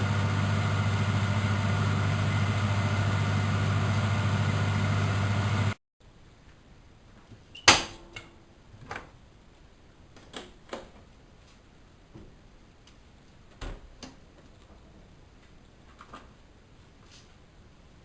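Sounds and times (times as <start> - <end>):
washing machine humming: 0.0 - 5.8.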